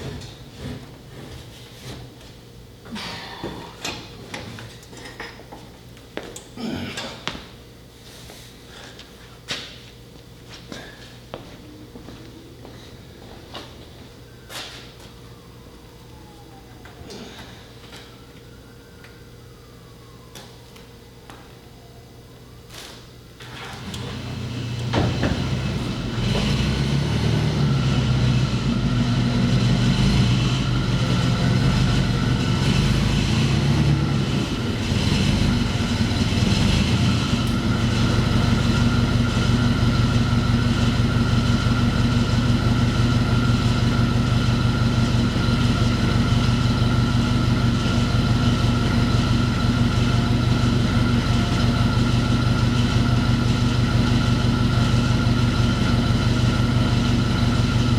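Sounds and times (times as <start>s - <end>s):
engine starting and idling: 23.4s - 57.9s.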